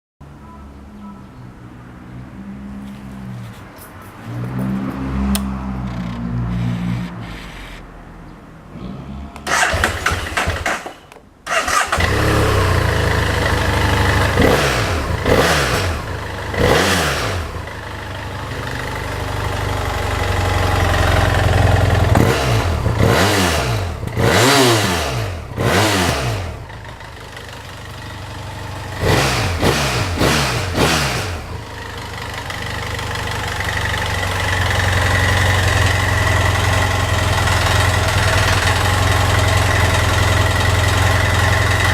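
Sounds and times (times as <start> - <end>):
motorcycle engine revving and idling: 4.3 - 7.8, 9.4 - 41.9
starter motor cranking: 9.4 - 12.7.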